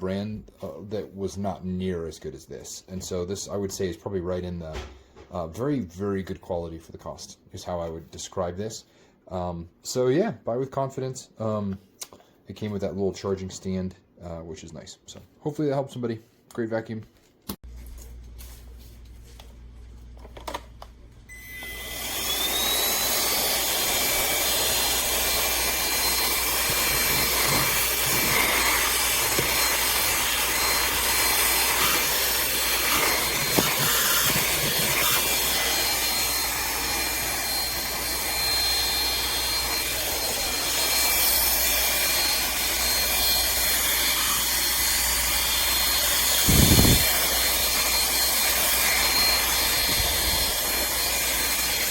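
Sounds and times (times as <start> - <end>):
handheld vacuum cleaner running: 21.3 - 51.9.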